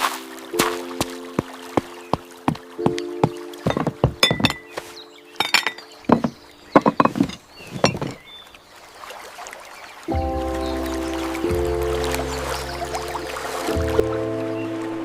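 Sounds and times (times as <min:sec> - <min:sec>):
faint background music: 0:00.0 - 0:07.4, 0:10.1 - 0:15.0
clinks and knocks of gear: 0:05.4 - 0:08.2.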